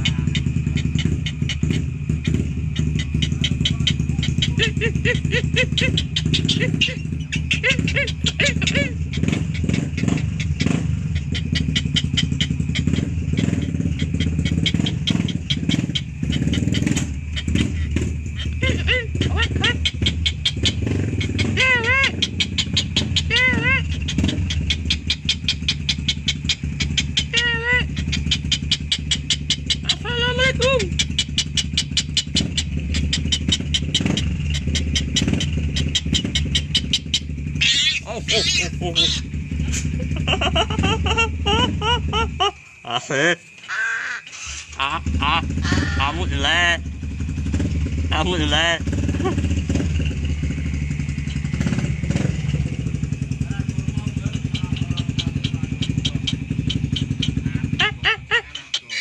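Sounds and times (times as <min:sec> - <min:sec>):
small engine humming: 0:00.0 - 0:42.6, 0:44.4 - 0:59.0
rapid irregular clicking: 0:05.8 - 0:18.6
short rising-and-falling chirps: 0:30.9 - 0:40.2, 0:41.0 - 0:53.4.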